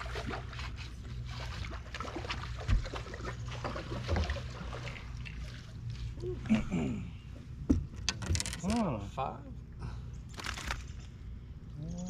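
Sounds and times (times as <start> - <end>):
boat motor humming: 0.0 - 12.0
knocks and clicks on hull: 1.6 - 4.5, 7.6 - 8.8.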